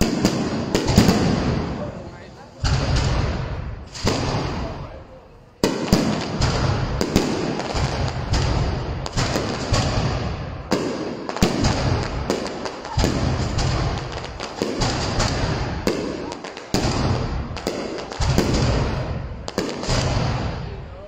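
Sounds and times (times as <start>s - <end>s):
firework shells bursting: 5.6s - 20.7s.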